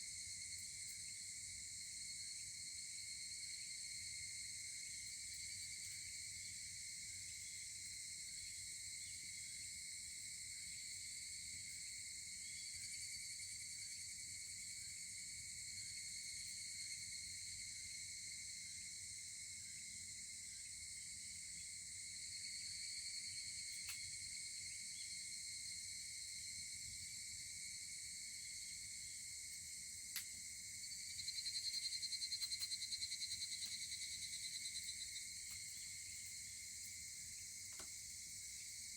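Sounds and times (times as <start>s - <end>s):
insects chirring: 27.7s - 38.9s.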